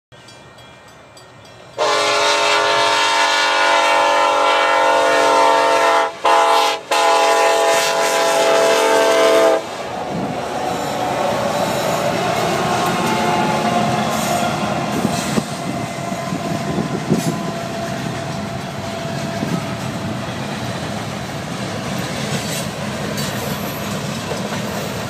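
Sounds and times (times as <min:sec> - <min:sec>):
freight train rolling past: 0:00.1 - 0:25.0
locomotive air horn blasts: 0:01.8 - 0:09.8.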